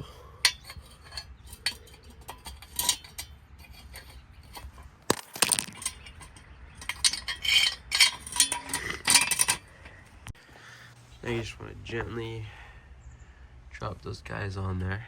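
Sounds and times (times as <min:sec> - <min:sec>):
metal jack stand clinking: 0:00.0 - 0:10.0.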